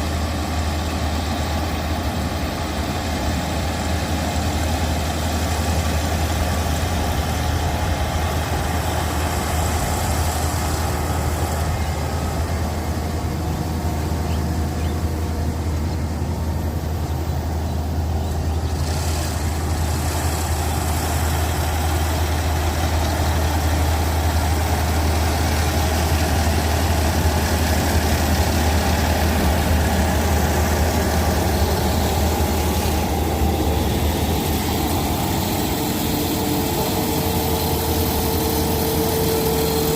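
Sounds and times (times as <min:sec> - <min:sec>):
engine droning steadily: 0:00.0 - 0:39.9.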